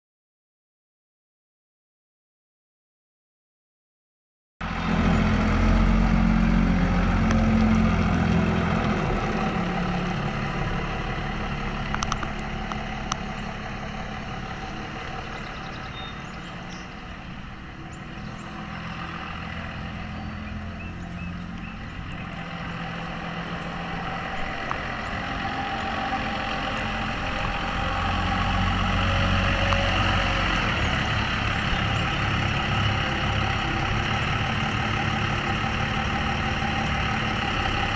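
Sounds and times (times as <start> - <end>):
truck engine idling: 4.6 - 37.9.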